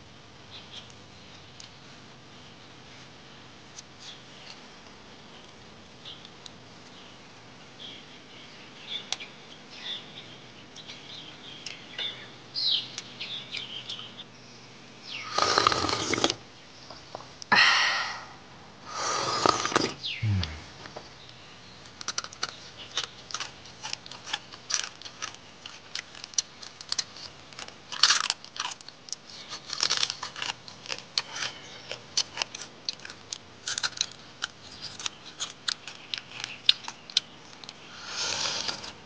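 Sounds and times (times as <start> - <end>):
slurps: 15.3 - 16.4, 18.9 - 20.7, 38.0 - 39.0
crab being chewed and crunched: 21.9 - 39.0.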